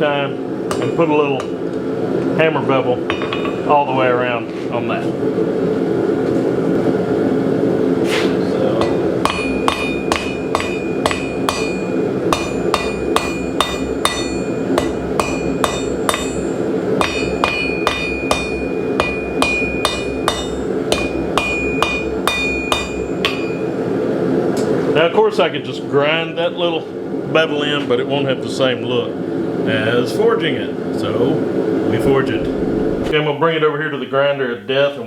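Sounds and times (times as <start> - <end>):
hammer ringing on anvil: 0.7 - 1.5, 8.8 - 23.8
steady low roar: 31.7 - 33.2.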